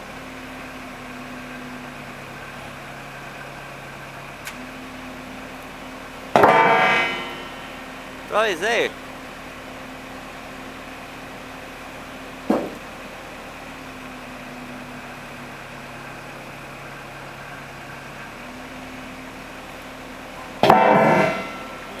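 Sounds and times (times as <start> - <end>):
loud multi-tone sound: 8.3 - 9.0.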